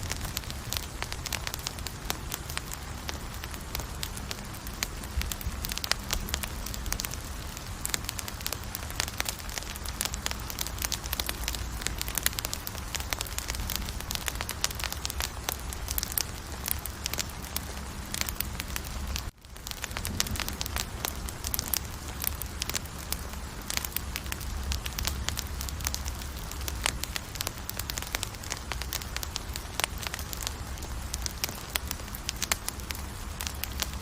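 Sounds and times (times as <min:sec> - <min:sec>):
campfire crackling and popping: 0:00.0 - 0:34.0.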